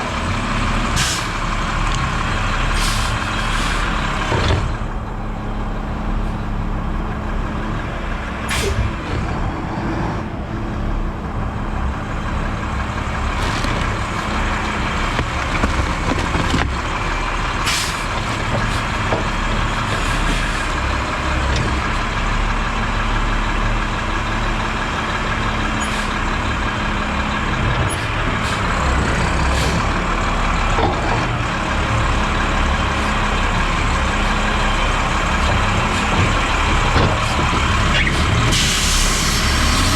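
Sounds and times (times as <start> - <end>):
garbage truck engine hum: 0.0 - 39.9
hydraulic packer compacting trash: 12.8 - 22.1.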